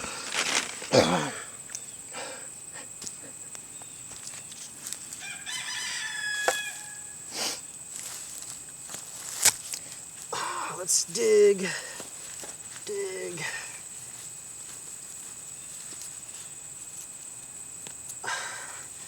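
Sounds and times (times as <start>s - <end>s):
rooster crowing: 5.2s - 7.3s.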